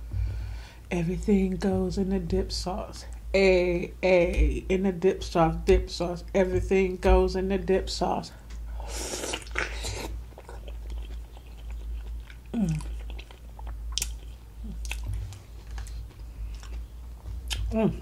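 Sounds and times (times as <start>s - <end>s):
person chewing: 8.9s - 18.0s
person humming mmm: 12.5s - 13.1s.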